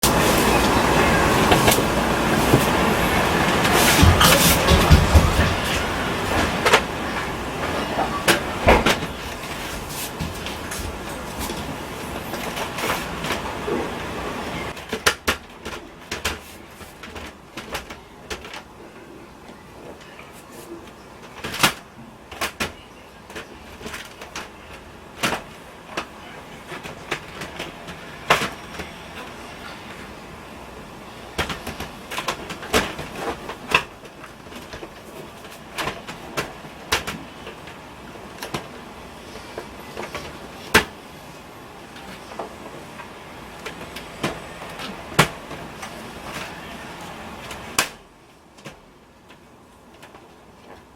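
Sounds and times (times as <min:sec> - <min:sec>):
rustling: 0:01.5 - 0:14.0
hard parts clicking and knocking: 0:03.5 - 0:13.9.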